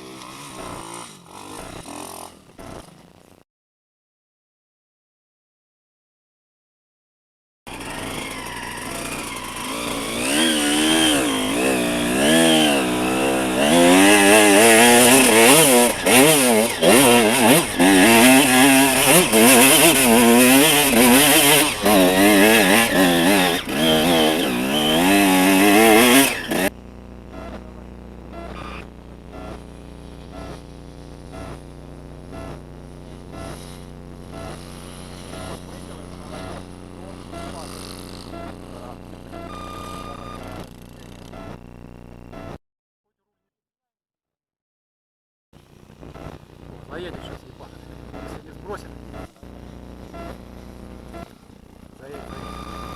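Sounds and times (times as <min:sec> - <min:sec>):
motorcycle engine revving: 0:00.0 - 0:03.2, 0:07.7 - 0:42.2.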